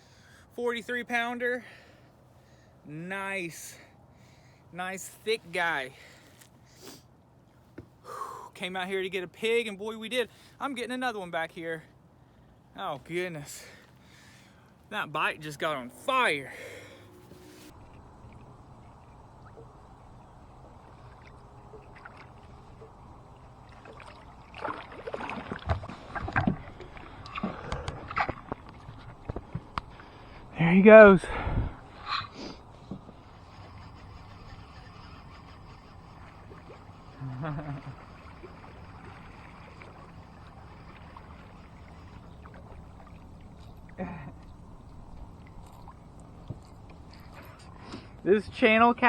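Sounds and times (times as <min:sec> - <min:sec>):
boat motor humming: 0:00.0 - 0:49.0
knocks and rattles aboard boat: 0:21.6 - 0:30.2.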